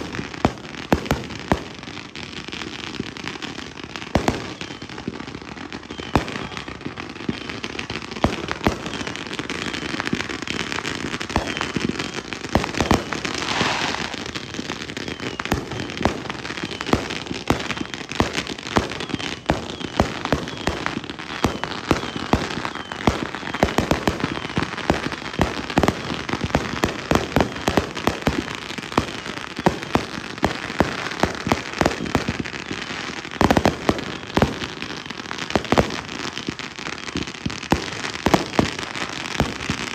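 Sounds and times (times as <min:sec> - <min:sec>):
fireworks crackle: 0:00.0 - 0:39.9
fireworks bangs: 0:11.0 - 0:17.7
hissing burst: 0:13.2 - 0:14.4.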